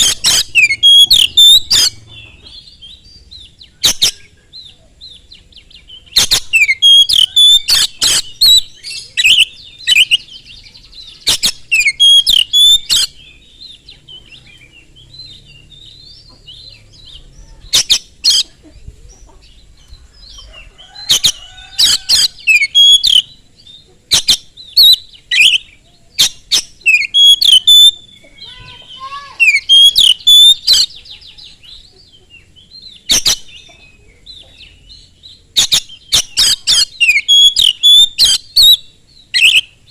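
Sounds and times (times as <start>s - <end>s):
bird singing whistled phrases: 0.0s - 2.0s, 6.0s - 13.4s, 21.8s - 23.4s, 24.1s - 31.8s, 34.8s - 39.9s.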